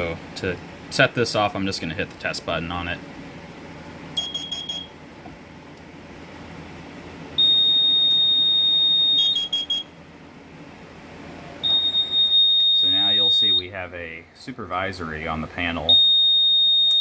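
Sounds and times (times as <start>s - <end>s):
carbon monoxide detector beeping: 4.1s - 5.0s, 7.4s - 10.0s, 11.6s - 13.7s, 15.8s - 17.0s.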